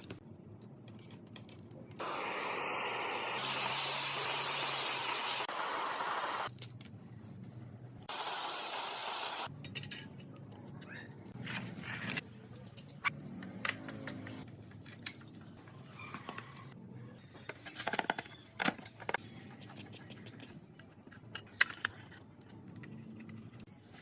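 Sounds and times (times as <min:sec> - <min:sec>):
small parts and tools clicking: 0:17.5 - 0:23.7.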